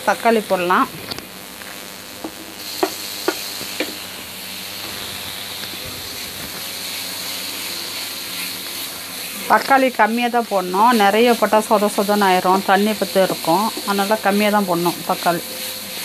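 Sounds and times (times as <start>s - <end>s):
food sizzling in a pan: 0.0s - 16.0s
wooden spatula knocking on pan: 2.2s - 4.0s.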